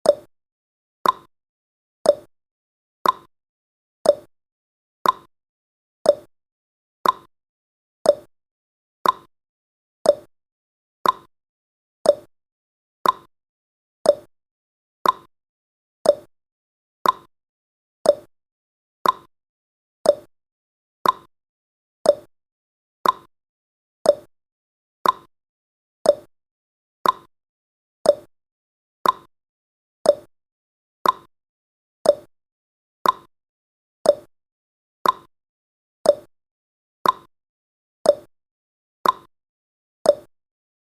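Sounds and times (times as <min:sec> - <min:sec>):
clock ticking: 0:03.0 - 0:03.3, 0:05.0 - 0:05.3, 0:07.0 - 0:07.3, 0:09.0 - 0:09.3, 0:11.0 - 0:11.3, 0:13.0 - 0:13.3, 0:15.0 - 0:15.3, 0:16.1 - 0:16.3, 0:17.0 - 0:17.3, 0:18.1 - 0:18.3, 0:19.0 - 0:19.3, 0:20.1 - 0:20.3, 0:21.0 - 0:21.3, 0:22.1 - 0:22.3, 0:23.0 - 0:23.3, 0:24.1 - 0:24.3, 0:25.0 - 0:25.3, 0:26.1 - 0:26.3, 0:27.0 - 0:27.3, 0:29.0 - 0:29.3, 0:30.1 - 0:30.3, 0:31.0 - 0:31.3, 0:32.1 - 0:32.3, 0:33.0 - 0:33.3, 0:34.1 - 0:34.3, 0:35.0 - 0:35.3, 0:36.1 - 0:36.3, 0:37.0 - 0:37.3, 0:38.1 - 0:38.3, 0:39.0 - 0:39.3, 0:40.1 - 0:40.3.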